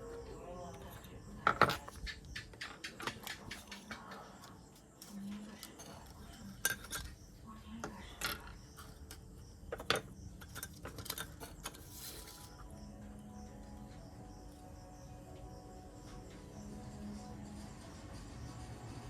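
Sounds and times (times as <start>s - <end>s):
small tools clicking and clinking: 0.0s - 12.7s.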